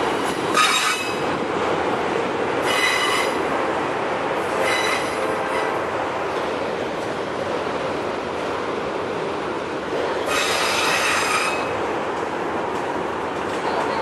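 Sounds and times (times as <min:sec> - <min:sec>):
train wheels rumbling on rail: 0:00.0 - 0:14.0
high-pitched wheel squeals: 0:04.6 - 0:05.2.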